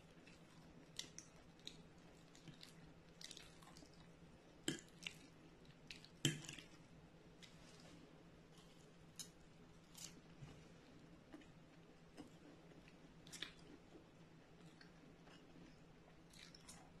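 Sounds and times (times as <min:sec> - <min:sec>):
faint steady hum: 0:00.0 - 0:17.0
close chewing: 0:00.1 - 0:04.1.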